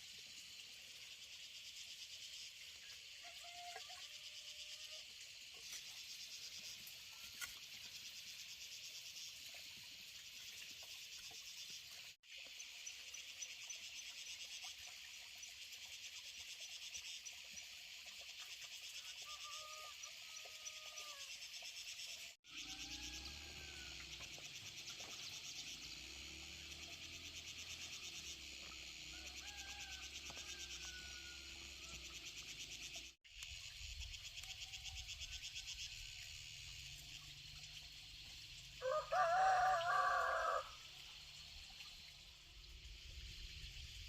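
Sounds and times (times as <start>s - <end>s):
insects buzzing: 0.0s - 44.0s
rooster crowing: 29.1s - 31.9s, 38.8s - 40.8s.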